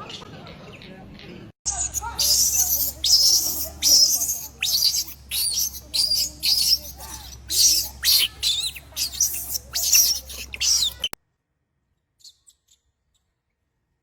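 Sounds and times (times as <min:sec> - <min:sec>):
baby monkey squealing: 0:01.7 - 0:11.2.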